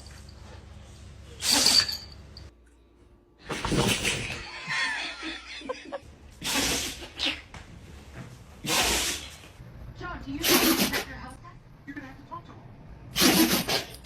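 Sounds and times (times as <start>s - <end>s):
dog sneezing: 1.4s - 2.0s, 6.4s - 7.4s, 8.6s - 9.5s, 10.4s - 11.2s, 13.1s - 14.0s
person laughing: 4.4s - 6.0s.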